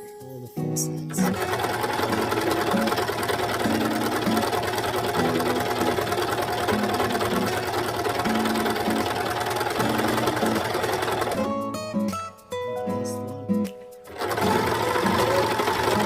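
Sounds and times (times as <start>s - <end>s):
sewing machine running: 1.2s - 11.5s, 14.1s - 16.0s.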